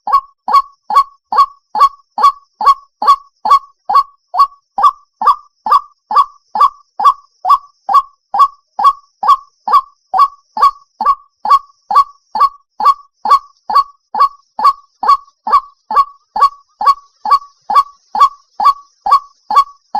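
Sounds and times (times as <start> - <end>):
waterhen calling: 0.0 - 19.9.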